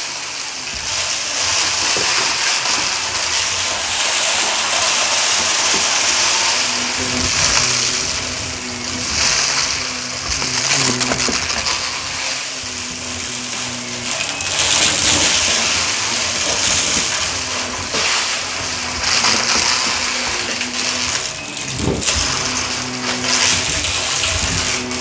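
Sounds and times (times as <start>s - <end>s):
debris crackling in vacuum: 0.0s - 25.0s
vacuum cleaner on carpet: 0.0s - 25.0s.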